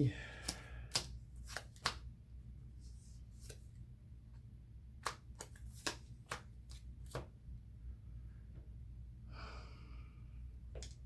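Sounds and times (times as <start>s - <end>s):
trading cards clicking and tapping: 0.4s - 2.0s.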